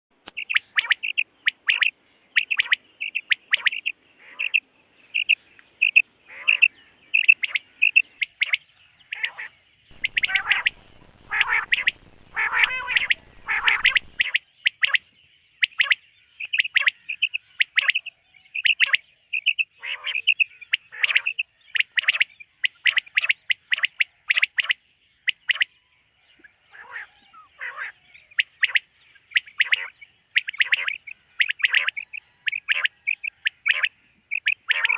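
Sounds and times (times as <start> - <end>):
quail calling: 0.3 - 4.6, 5.2 - 15.0, 15.6 - 24.7, 26.7 - 34.9.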